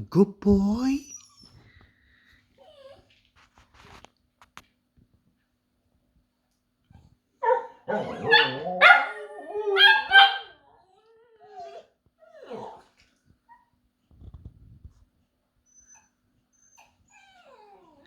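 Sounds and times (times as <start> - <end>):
dog whining: 1.0 - 1.8, 2.6 - 3.1, 7.4 - 12.9, 15.7 - 18.0
dog yelp: 7.4 - 10.6
dog yips and yowling: 7.4 - 12.9.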